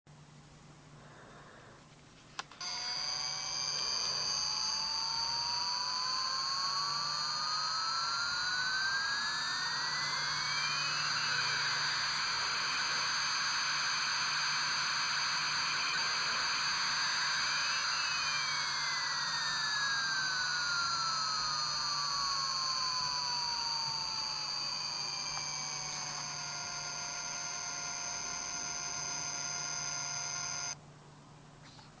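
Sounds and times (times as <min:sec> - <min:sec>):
tinny jet engine sound effect: 0:02.6 - 0:30.8.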